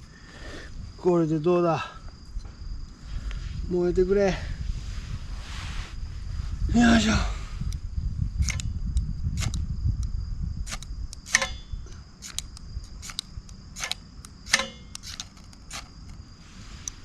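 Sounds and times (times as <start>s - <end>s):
fire-starter rod scraping: 8.4s - 8.6s, 13.8s - 17.0s.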